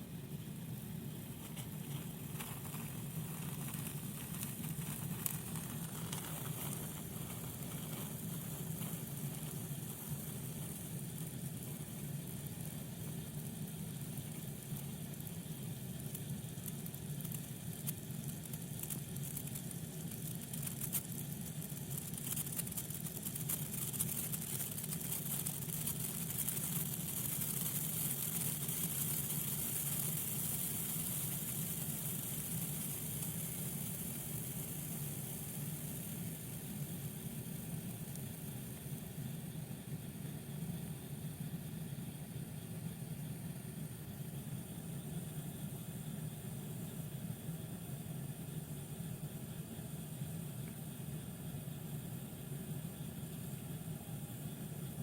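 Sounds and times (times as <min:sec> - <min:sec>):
sparkler sizzling and crackling: 0:00.0 - 0:42.2
steady low hum: 0:00.0 - 0:55.0.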